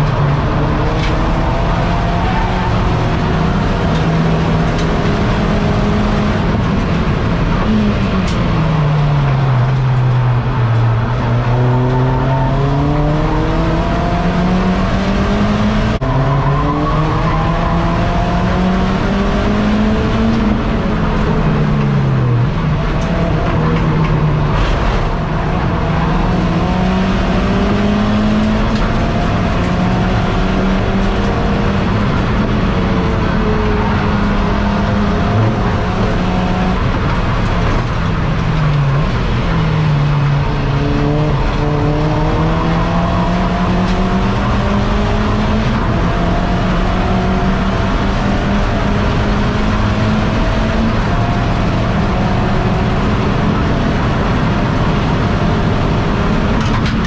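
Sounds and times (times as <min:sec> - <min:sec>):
car engine revving: 0:00.0 - 0:57.0
road and wind noise: 0:00.0 - 0:57.0.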